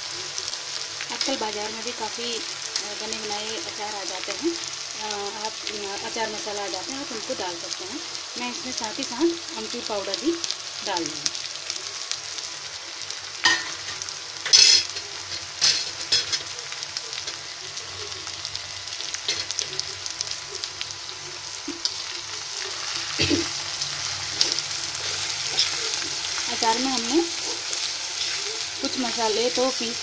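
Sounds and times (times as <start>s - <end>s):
food sizzling in oil: 0.0s - 30.0s
utensils clinking against pan: 13.4s - 16.5s, 19.2s - 19.7s, 24.4s - 25.9s.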